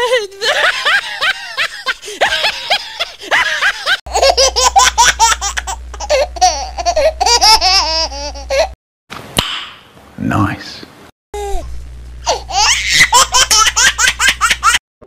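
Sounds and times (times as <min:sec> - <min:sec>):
higher-pitched laughing: 0:00.0 - 0:08.8, 0:12.2 - 0:14.8
rhythmic laughing: 0:00.4 - 0:08.8, 0:12.3 - 0:14.8
low hum: 0:04.1 - 0:08.7, 0:11.4 - 0:12.8.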